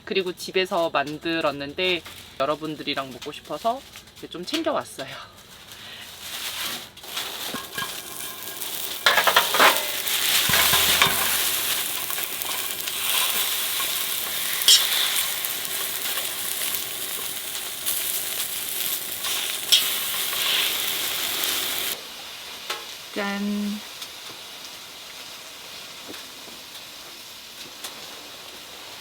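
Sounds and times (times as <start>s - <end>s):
pancakes sizzling in a frying pan: 0.0s - 29.0s
sharp clicks from utensils: 7.5s - 22.0s.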